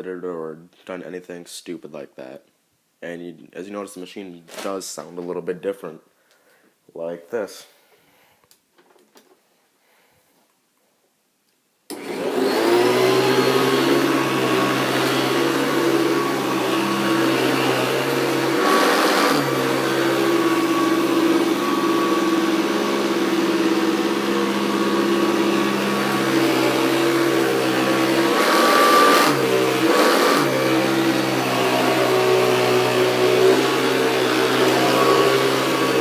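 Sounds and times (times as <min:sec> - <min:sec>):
upright vacuum motor hum: 0:11.9 - 0:36.0.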